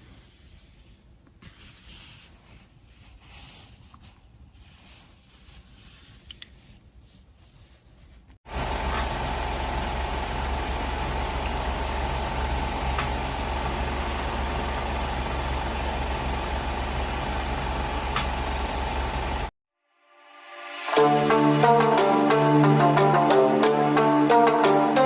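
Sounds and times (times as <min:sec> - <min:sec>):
machine humming: 0:08.5 - 0:19.5.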